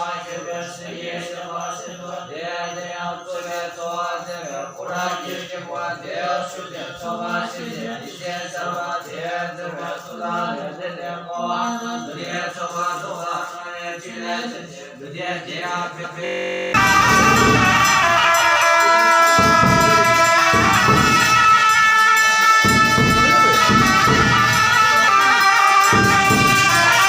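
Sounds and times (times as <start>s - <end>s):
voices chanting: 0.0s - 27.0s
steady low drone: 16.3s - 18.6s.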